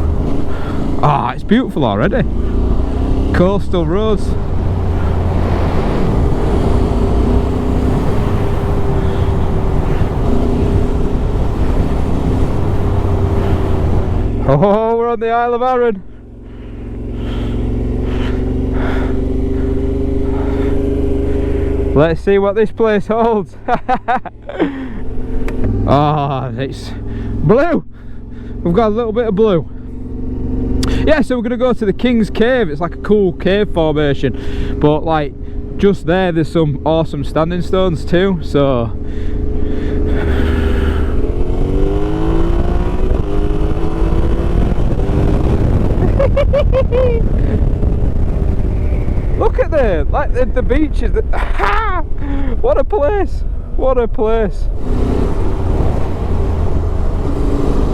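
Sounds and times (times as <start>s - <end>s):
motorcycle engine cruising: 0.0s - 57.9s
wind rushing in gusts: 2.2s - 14.4s, 40.1s - 52.7s, 54.7s - 57.9s
wind on microphone: 41.7s - 52.4s.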